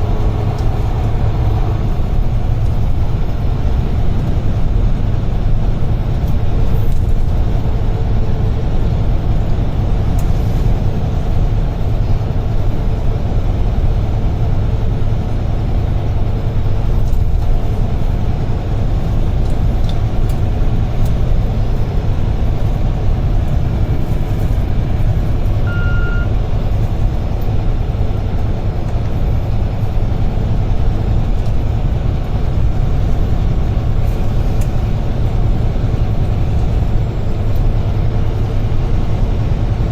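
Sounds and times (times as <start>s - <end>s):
truck engine and road rumble: 0.0s - 39.9s
short beep: 25.6s - 26.4s.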